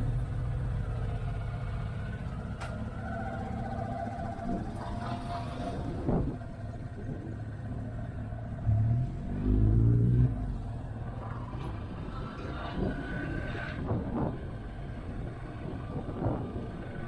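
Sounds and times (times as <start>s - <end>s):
motorcycle engine rumble: 0.0s - 9.4s
wind: 0.0s - 17.0s.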